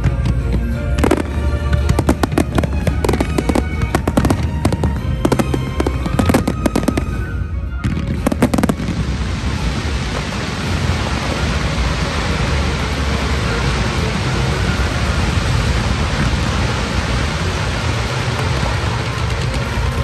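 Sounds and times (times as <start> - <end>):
firework shells bursting: 0.0 - 11.5
firework fountains hissing: 0.0 - 20.0.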